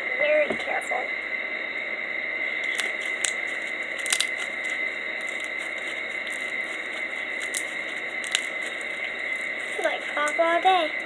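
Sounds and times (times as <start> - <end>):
beads popping and crackling: 2.6 - 10.4
slime being squished: 2.7 - 9.6.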